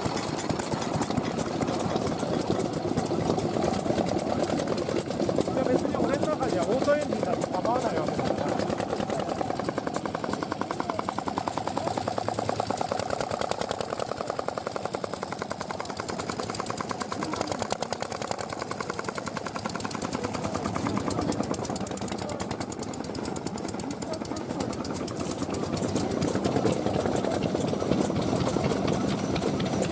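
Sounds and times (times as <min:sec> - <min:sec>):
stationary engine running: 0:00.0 - 0:29.9.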